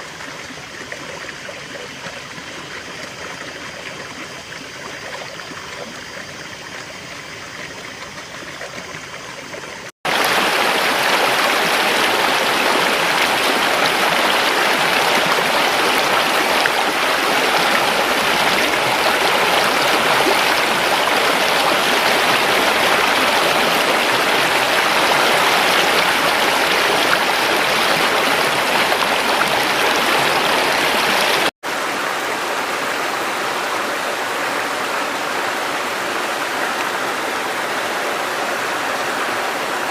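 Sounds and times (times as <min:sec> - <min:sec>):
river water rushing: 0:10.1 - 0:39.9.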